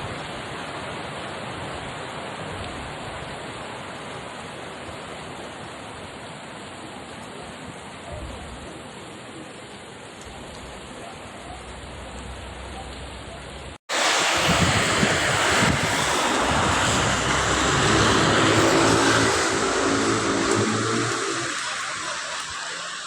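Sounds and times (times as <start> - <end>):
rainwater rushing: 0.0 - 23.0
car driving through floodwater: 0.2 - 23.0
car engine humming: 15.4 - 23.0.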